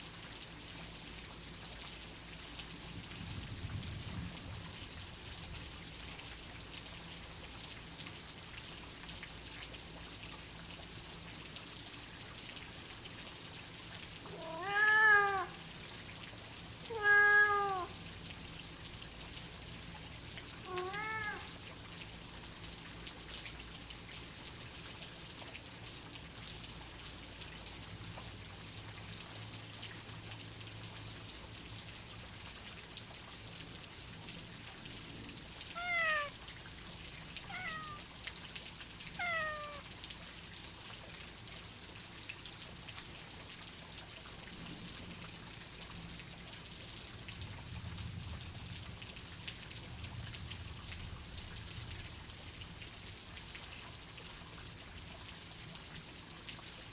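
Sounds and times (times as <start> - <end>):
steady rain hiss: 0.0 - 56.9
cat meowing: 14.3 - 15.6, 16.9 - 18.0, 20.6 - 21.5, 35.7 - 36.4, 37.4 - 38.1, 39.2 - 39.9.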